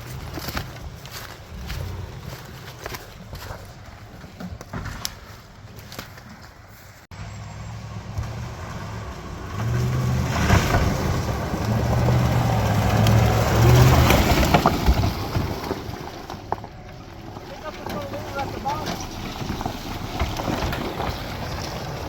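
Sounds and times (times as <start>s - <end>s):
pickup truck engine revving: 7.2s - 16.3s.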